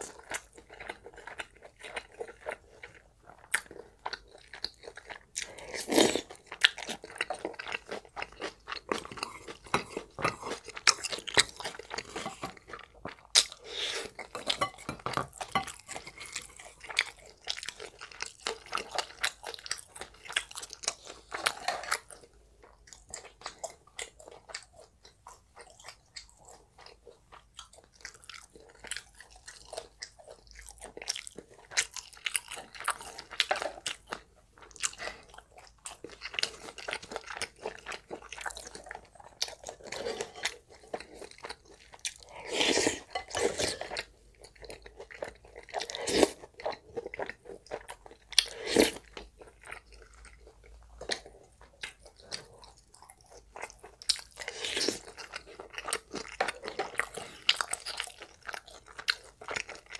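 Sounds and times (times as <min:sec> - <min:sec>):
person chewing and crunching food: 0:00.0 - 0:59.9
slurping broth from a spoon: 0:42.4 - 0:44.0.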